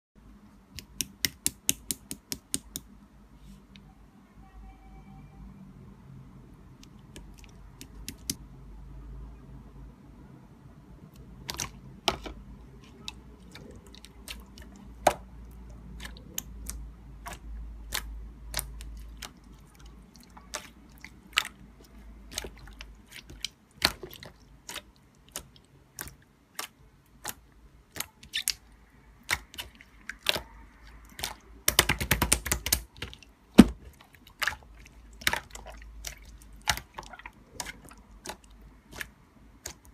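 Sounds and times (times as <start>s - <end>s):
sharp clicks and taps: 31.7s - 32.8s.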